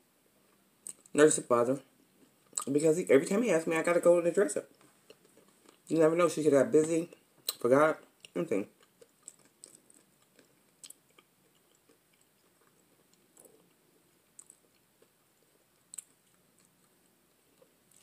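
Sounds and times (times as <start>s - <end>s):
faint close-up chewing: 0.4s - 1.1s, 2.1s - 2.8s, 4.7s - 6.0s, 6.8s - 18.0s
soft mouth clicks: 14.4s - 14.8s.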